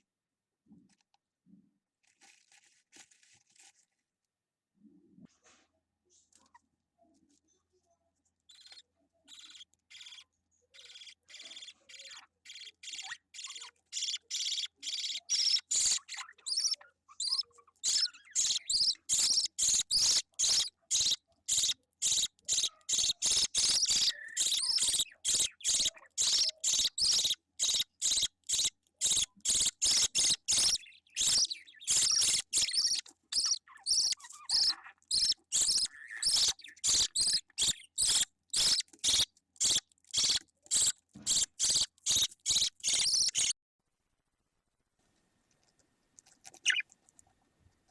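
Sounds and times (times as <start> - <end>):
budgerigar chick chirping: 8.5 - 10.2, 10.8 - 43.5, 46.6 - 46.9.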